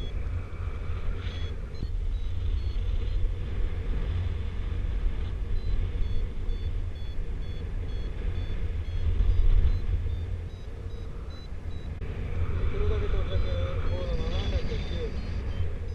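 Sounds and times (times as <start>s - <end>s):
variometer high beeps: 0.0s - 3.8s, 5.1s - 15.9s
wind rumbling on microphone: 0.0s - 15.9s.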